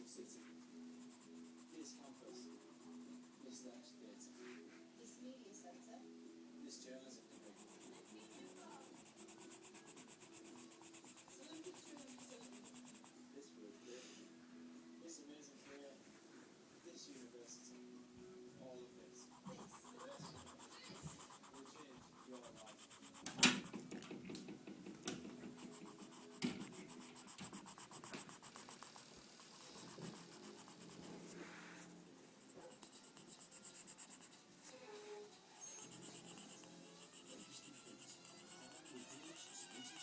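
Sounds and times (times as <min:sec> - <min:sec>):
pencil scratching on paper: 0:00.4 - 0:03.6, 0:07.2 - 0:13.2, 0:19.2 - 0:24.3, 0:25.0 - 0:34.4, 0:35.6 - 0:40.0.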